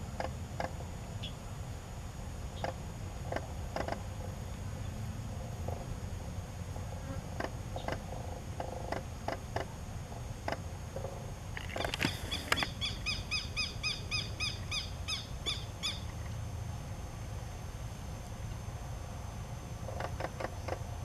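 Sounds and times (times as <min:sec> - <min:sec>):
bird chirping quickly: 0:12.1 - 0:16.2.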